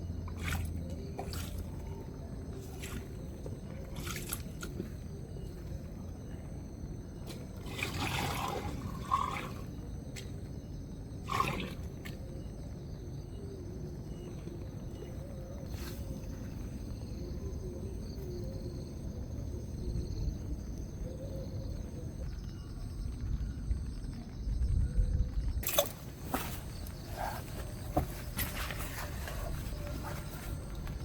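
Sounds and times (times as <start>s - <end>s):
wind: 0.0s - 31.0s
water dribbling: 0.3s - 1.9s, 7.5s - 9.8s, 25.6s - 26.2s.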